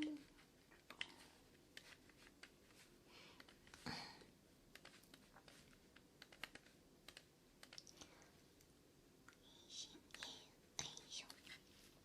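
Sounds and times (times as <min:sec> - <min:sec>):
soft hiss: 0:00.0 - 0:12.0
faint small clicks: 0:04.7 - 0:08.7.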